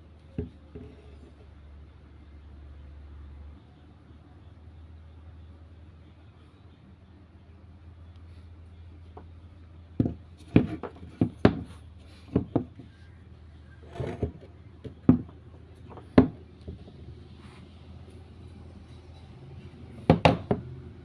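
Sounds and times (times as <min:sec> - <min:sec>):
objects knocking and clunking: 0:00.4 - 0:01.3, 0:10.0 - 0:13.0, 0:13.8 - 0:17.1, 0:20.0 - 0:20.7.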